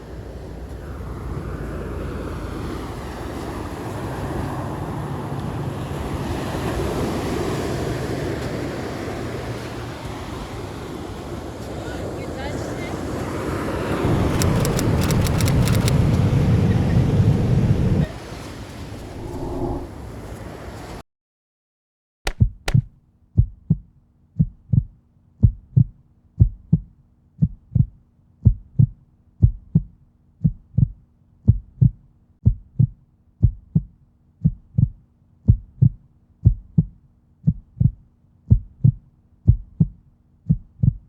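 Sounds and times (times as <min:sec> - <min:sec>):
steady low hum: 0:19.0 - 0:20.2
heartbeat-like low thumps: 0:22.3 - 0:41.0.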